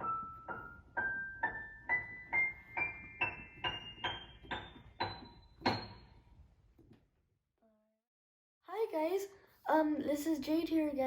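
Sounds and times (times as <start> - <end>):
piano notes ascending: 0.0 - 6.5.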